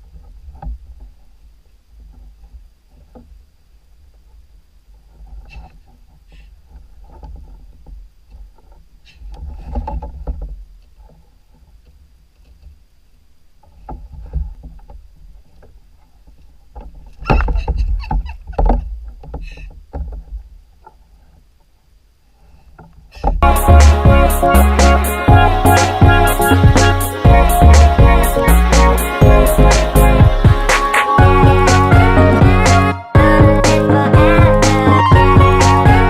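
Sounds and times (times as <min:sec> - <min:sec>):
steady low rumble: 0:23.4 - 0:36.0.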